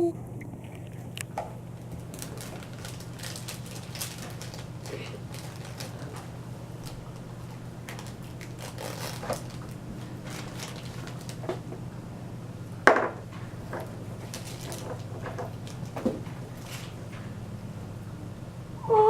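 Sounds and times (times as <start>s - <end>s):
steady low hum: 0.0s - 19.0s
plastic packaging rustles and clicks: 0.6s - 11.8s, 13.5s - 17.3s.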